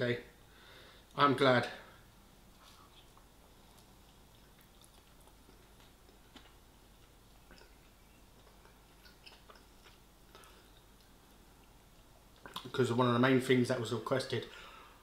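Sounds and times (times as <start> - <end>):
person chewing food: 2.5 - 12.7.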